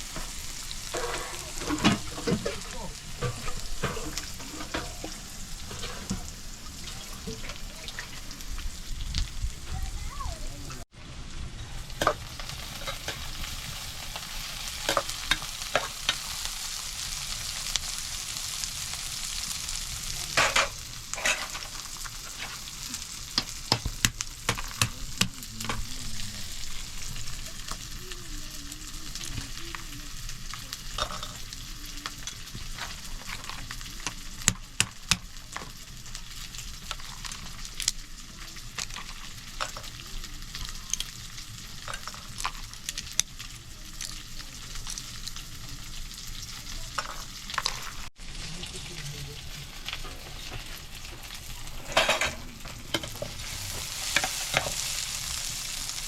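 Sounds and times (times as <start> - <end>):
food sizzling in a pan: 0.0 - 56.0
stirring clicks and knocks: 0.1 - 8.2.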